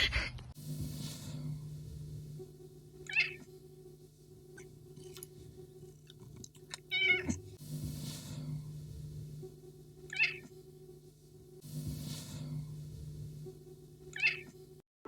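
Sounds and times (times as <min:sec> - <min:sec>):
steady low hum: 0:00.5 - 0:14.8
cat meowing: 0:03.1 - 0:03.4, 0:06.9 - 0:07.4, 0:10.1 - 0:10.4, 0:14.2 - 0:14.5.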